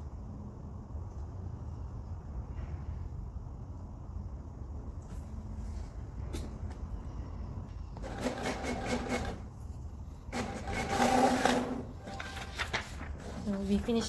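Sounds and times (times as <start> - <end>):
printer rapid clicking: 8.0 - 9.4, 10.3 - 13.9
printer motor whirring: 10.3 - 12.6.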